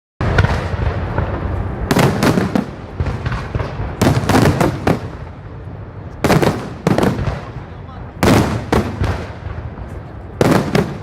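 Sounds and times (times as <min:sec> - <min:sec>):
fireworks bangs: 0:00.2 - 0:11.0.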